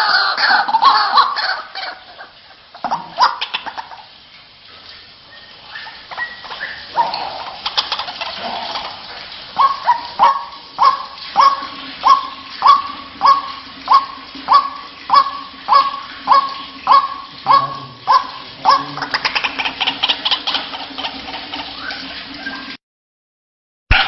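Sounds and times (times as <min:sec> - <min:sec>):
bird calling sharp notes: 0:09.6 - 0:20.7.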